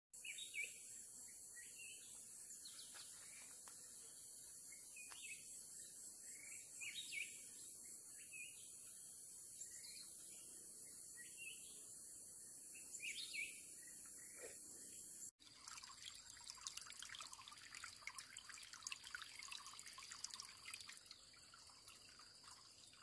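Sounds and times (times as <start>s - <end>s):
small birds chirping: 0.2s - 15.3s.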